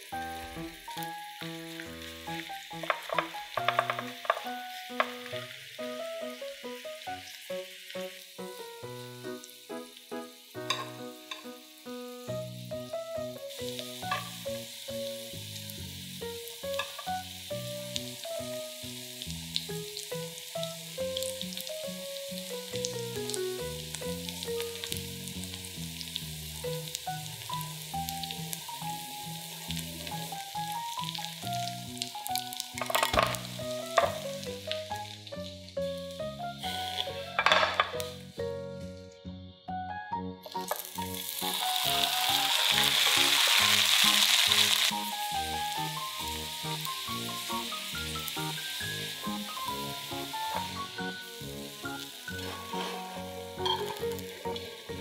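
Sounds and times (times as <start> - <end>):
chopsticks stirring in pan: 0.0 - 8.5, 10.5 - 11.7, 13.7 - 14.8, 16.2 - 17.5, 23.8 - 38.2, 40.5 - 55.0
simple background melody: 0.0 - 15.4, 16.2 - 19.0, 26.6 - 55.0
batter sizzling in oil: 0.0 - 38.5, 40.4 - 55.0.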